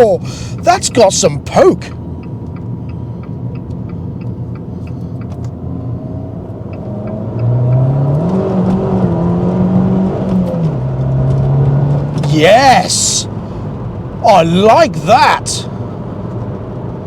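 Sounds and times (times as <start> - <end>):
car engine accelerating: 1.8 - 17.0.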